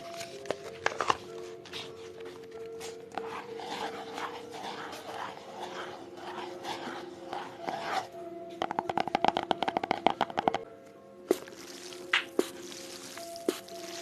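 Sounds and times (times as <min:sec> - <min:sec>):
soft strokes: 0:03.2 - 0:08.1.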